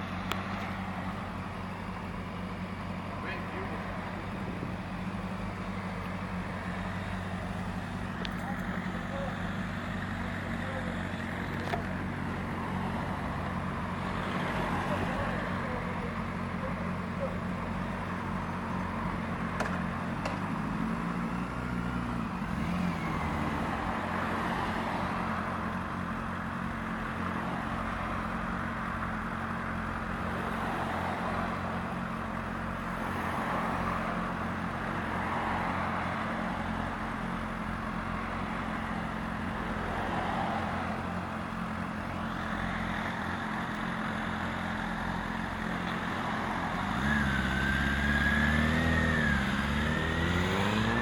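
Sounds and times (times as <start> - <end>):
motorcycle engine idling: 0.0 - 14.0, 15.0 - 20.5.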